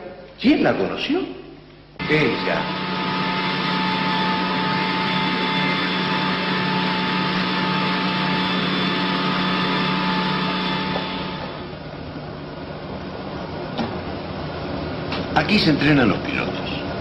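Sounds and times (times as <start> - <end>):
engine-like machine hum: 2.0 - 14.8.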